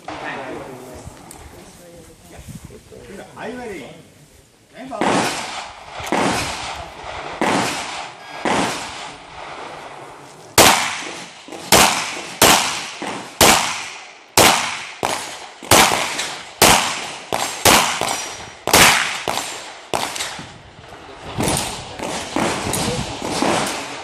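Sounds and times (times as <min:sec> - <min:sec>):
pistol shots: 0:05.0 - 0:09.2, 0:10.6 - 0:20.4, 0:21.4 - 0:24.0.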